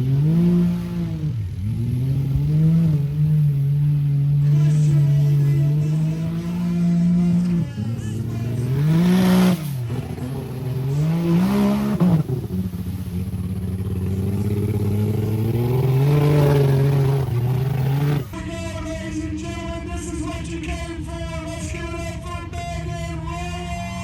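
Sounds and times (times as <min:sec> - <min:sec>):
off-road vehicle engine revving: 0:00.0 - 0:18.4.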